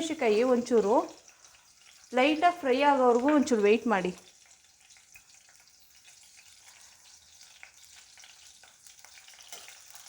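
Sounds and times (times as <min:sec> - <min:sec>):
chillies sizzling in oil: 0:00.0 - 0:10.0.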